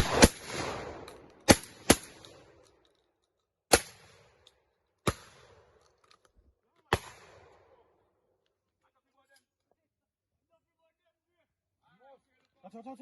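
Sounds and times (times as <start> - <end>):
shotgun shots echoing: 0.0 - 2.6, 3.7 - 4.4, 5.0 - 5.8, 6.9 - 7.8.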